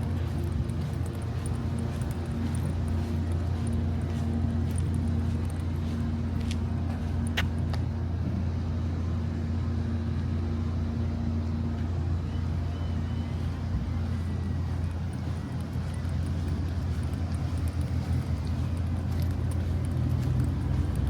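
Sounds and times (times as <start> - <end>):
engine droning: 0.0 - 21.0.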